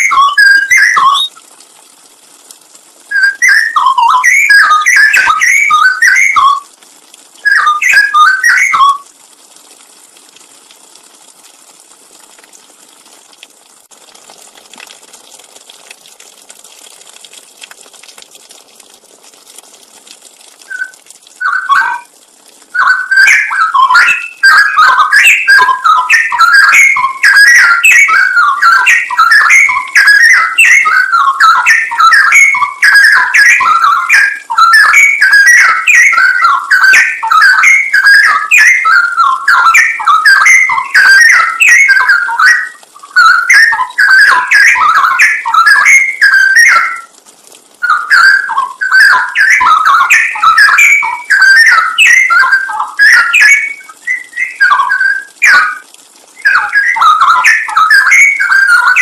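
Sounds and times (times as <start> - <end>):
bulbul singing whistled phrases: 0.0 - 1.4, 3.1 - 6.7, 7.4 - 9.1, 20.6 - 22.1, 22.7 - 47.1, 47.8 - 59.0.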